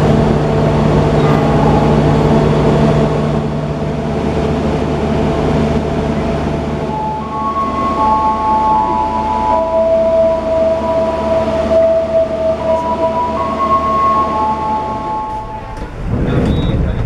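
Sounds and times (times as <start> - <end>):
held higher tones: 0.0 - 5.2, 6.6 - 15.9
train rumble and rail noise: 0.0 - 17.0.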